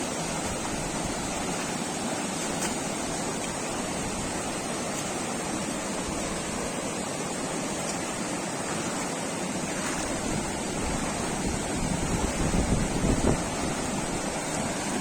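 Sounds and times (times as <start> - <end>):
rushing water: 0.0 - 15.0
wind rumble on microphone: 9.9 - 14.8.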